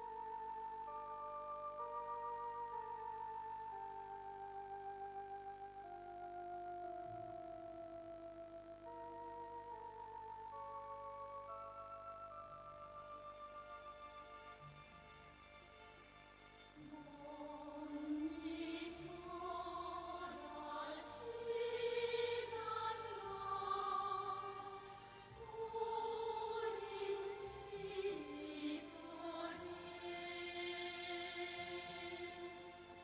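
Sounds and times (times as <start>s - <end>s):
operatic singing with music: 16.8s - 33.0s.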